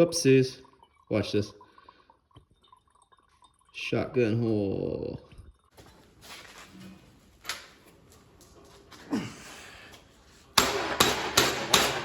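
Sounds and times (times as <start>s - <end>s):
hammer blows on sheet metal: 10.6s - 12.0s.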